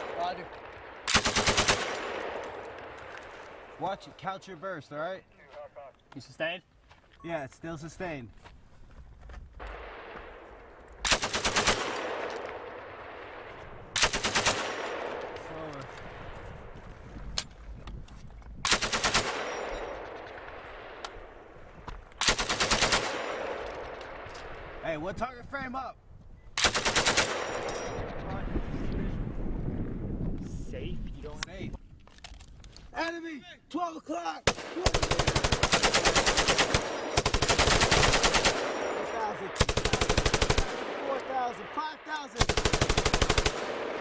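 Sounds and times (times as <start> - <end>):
gunfire echo: 0.0 - 3.8, 9.6 - 16.3, 34.5 - 44.0
machine gun bursts: 11.1 - 12.0, 22.2 - 23.3, 26.6 - 27.6, 34.8 - 38.8, 39.6 - 40.8, 42.4 - 43.7
machine gun burst: 34.8 - 38.8.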